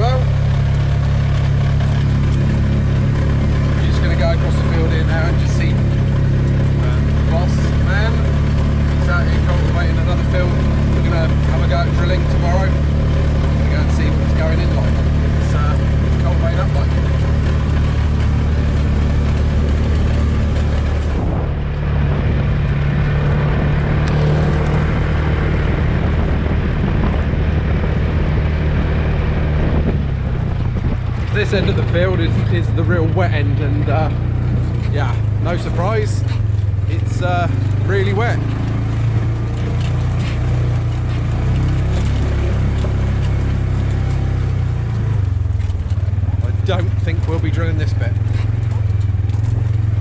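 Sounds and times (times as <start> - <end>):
utility vehicle engine running: 0.0 - 50.0
light ticks and rattles: 33.3 - 50.0.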